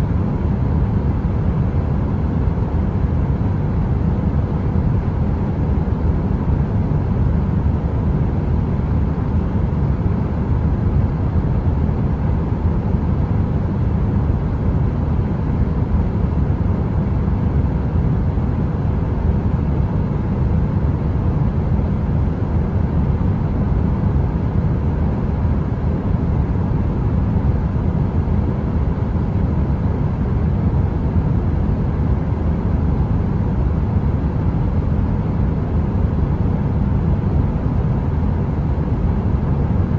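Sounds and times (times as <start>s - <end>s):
heater deep rumbling hum: 0.0s - 39.9s.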